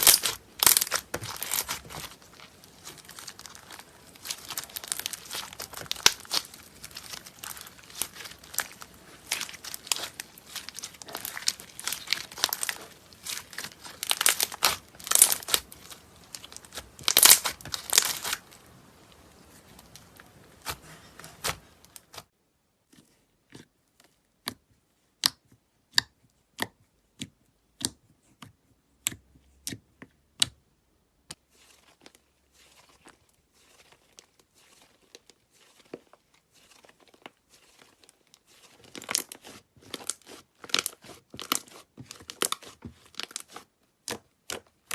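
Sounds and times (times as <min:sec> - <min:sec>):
crunchy slime crackling and popping: 0:00.0 - 0:22.3, 0:31.7 - 0:44.9.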